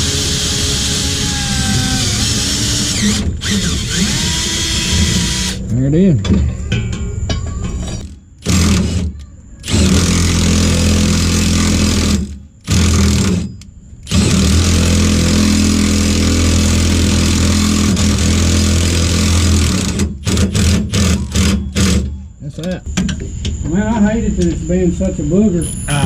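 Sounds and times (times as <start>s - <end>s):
power drill boring metal: 0.0s - 5.6s, 8.0s - 22.0s.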